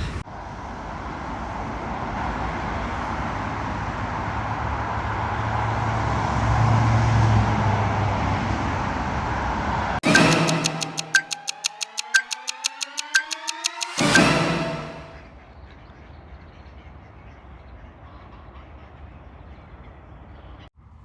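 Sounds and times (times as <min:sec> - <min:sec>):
road noise: 0:00.0 - 0:10.1.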